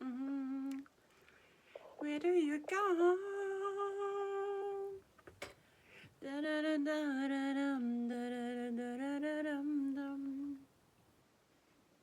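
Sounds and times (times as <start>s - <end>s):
woman humming: 0.0s - 0.9s.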